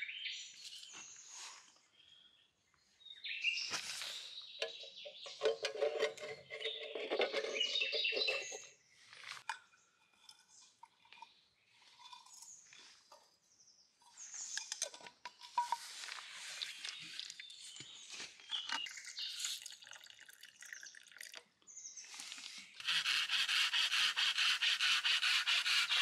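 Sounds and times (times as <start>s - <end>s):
small birds chirping: 0.0s - 9.9s, 16.3s - 22.8s.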